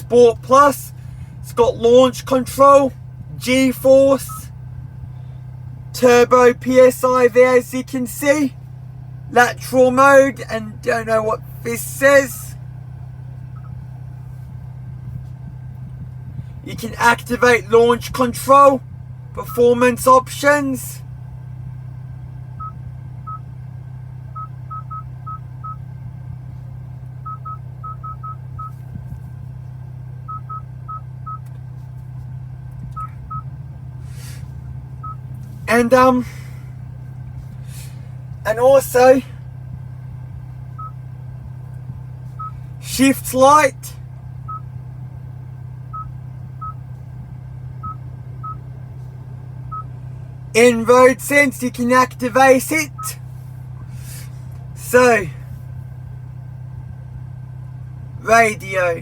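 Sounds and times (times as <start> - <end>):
low cabin hum: 0.0 - 59.0
touchscreen beeps: 24.4 - 25.8, 27.2 - 28.8, 40.8 - 41.0.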